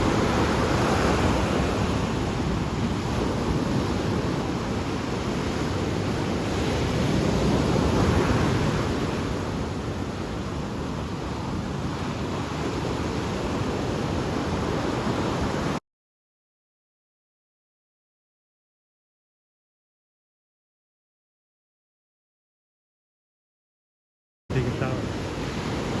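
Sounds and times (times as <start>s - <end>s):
ocean surf washing in: 0.0s - 15.8s, 24.5s - 26.0s.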